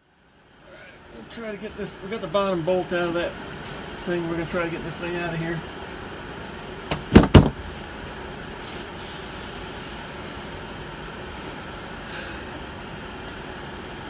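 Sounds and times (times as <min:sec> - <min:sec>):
loud knocks: 0:06.9 - 0:07.7
faint brief hiss: 0:08.6 - 0:10.6.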